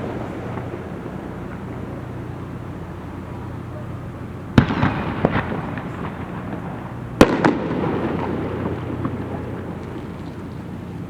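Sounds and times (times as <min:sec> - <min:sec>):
firework crackle: 0:00.0 - 0:11.0
firework shell bang: 0:04.6 - 0:10.5.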